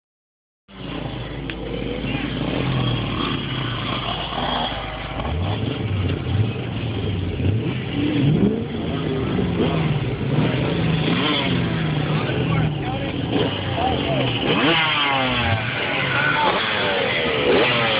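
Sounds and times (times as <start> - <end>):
vehicle engine revving: 0.7 - 17.9.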